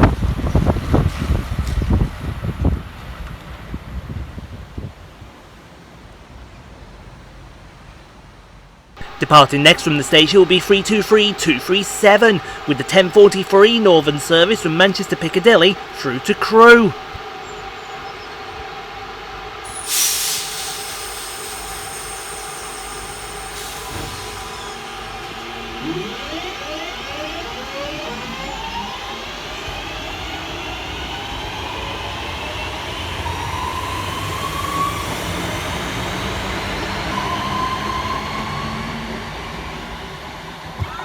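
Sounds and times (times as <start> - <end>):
electric train motors whining: 14.1 - 39.8
air hiss: 19.7 - 25.4.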